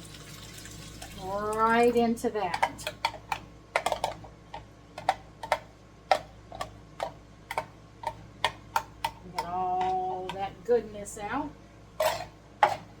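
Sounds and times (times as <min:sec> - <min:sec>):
metal spoon scraping a can: 0:12.0 - 0:12.9.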